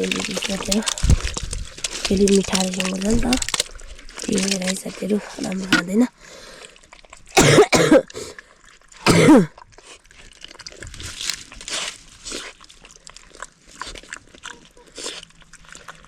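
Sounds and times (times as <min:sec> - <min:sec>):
faint soft crunching: 0:00.0 - 0:07.4, 0:08.0 - 0:16.0
man coughing: 0:07.4 - 0:08.1, 0:09.1 - 0:09.5.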